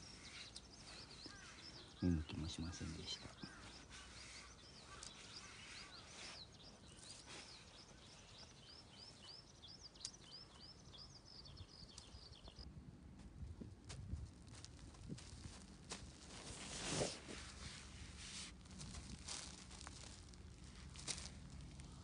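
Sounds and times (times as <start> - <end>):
small bird chirping quickly: 0.0 - 12.6.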